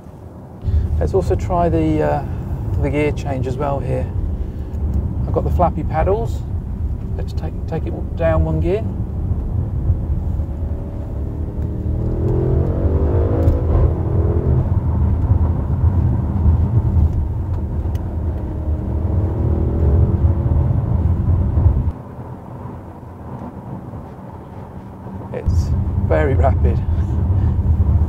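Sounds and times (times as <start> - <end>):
car engine accelerating hard: 7.0 - 24.4.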